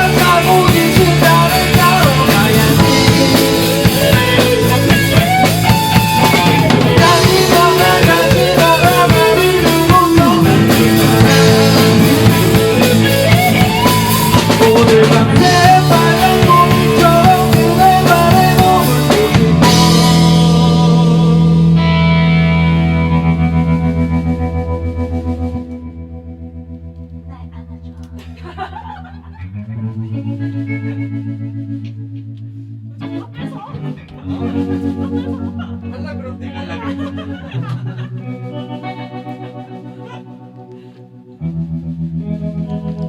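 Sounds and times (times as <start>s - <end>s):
drum kit: 0.0s - 26.0s
distorted electric guitar: 0.0s - 28.2s, 29.5s - 43.0s
bass guitar: 0.0s - 43.0s.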